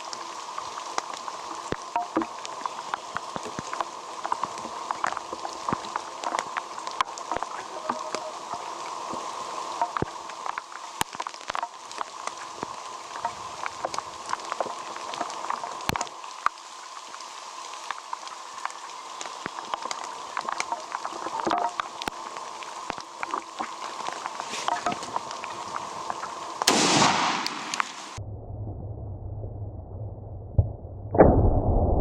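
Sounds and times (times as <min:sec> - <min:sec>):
raindrops ticking close by: 0:00.0 - 0:28.2
steady rain falling: 0:00.0 - 0:28.2.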